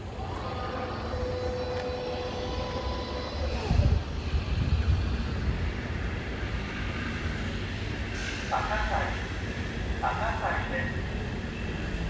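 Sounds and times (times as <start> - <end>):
electric train motor whine: 0.0 - 7.8
train running gear rumble: 0.0 - 12.0.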